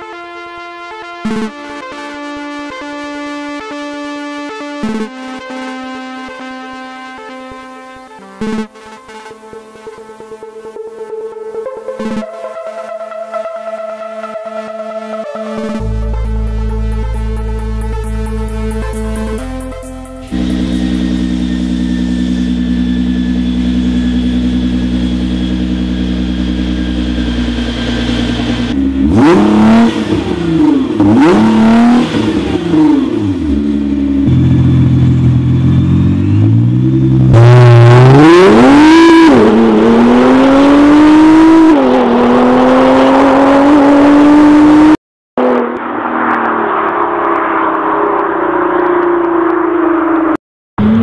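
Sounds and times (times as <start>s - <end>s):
car engine revving: 10.6s - 51.0s
dull engine running: 15.6s - 41.3s.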